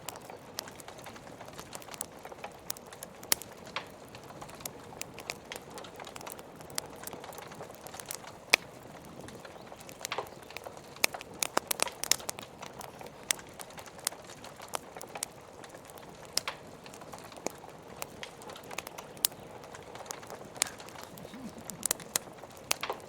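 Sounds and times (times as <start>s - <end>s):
wood fire crackling: 0.0s - 23.0s
rain hissing: 18.4s - 23.0s.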